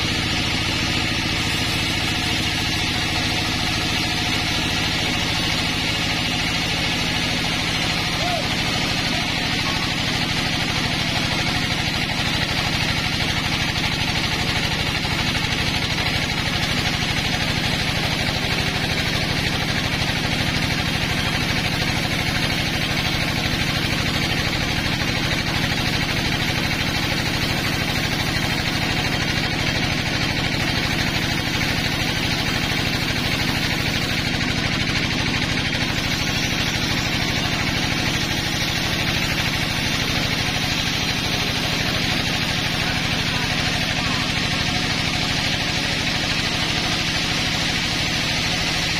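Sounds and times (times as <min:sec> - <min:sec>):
sawmill engine running: 0:00.0 - 0:48.9.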